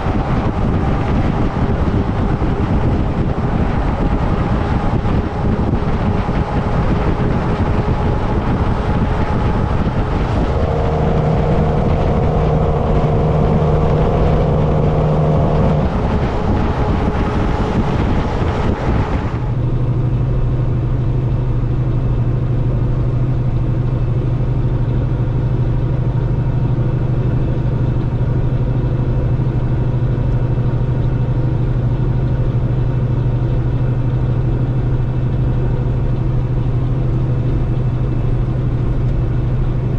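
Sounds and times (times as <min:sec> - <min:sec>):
wind noise: 0:00.0 - 0:21.2
truck engine hum: 0:00.0 - 0:39.9
truck tyre noise: 0:00.0 - 0:39.9.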